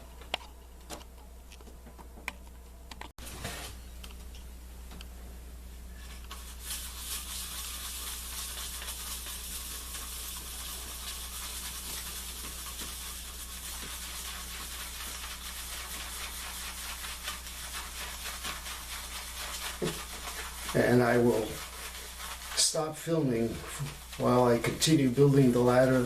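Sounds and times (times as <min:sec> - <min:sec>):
shaving brush whipping lather: 0:06.1 - 0:26.0.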